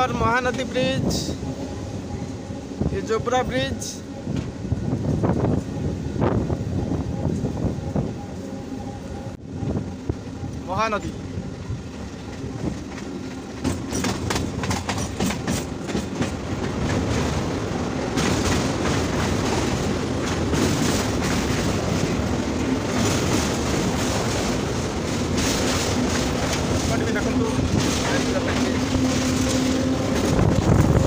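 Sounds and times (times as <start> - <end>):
train wheels clattering over rails: 12.0 - 31.0.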